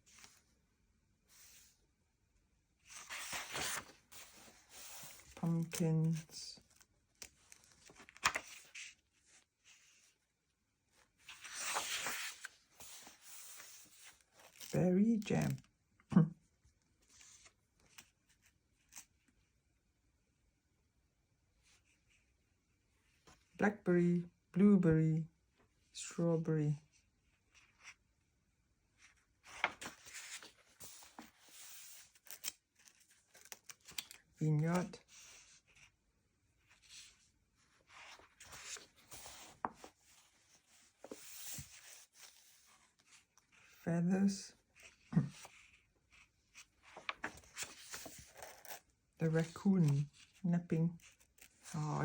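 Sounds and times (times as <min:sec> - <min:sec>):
magazine pages turning: 0:02.8 - 0:10.0, 0:11.0 - 0:15.6, 0:29.4 - 0:35.9, 0:36.6 - 0:43.8, 0:44.8 - 0:51.7
faint paper rustle: 0:02.8 - 0:10.2, 0:10.9 - 0:15.7, 0:16.8 - 0:19.3, 0:29.0 - 0:36.0, 0:36.6 - 0:43.8, 0:44.5 - 0:52.0.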